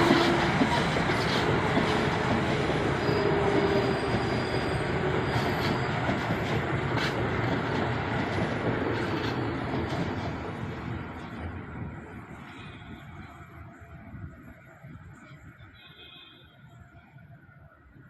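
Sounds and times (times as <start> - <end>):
train wheel and rail noise: 0.0 - 18.0
faint wheel squeal: 3.0 - 5.9.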